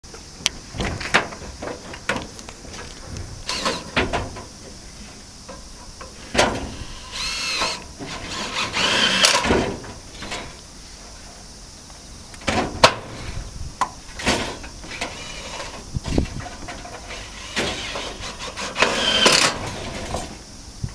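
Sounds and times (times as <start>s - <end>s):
power tool whine: 3.4s - 4.0s, 6.3s - 9.8s, 14.8s - 15.8s, 16.8s - 20.3s.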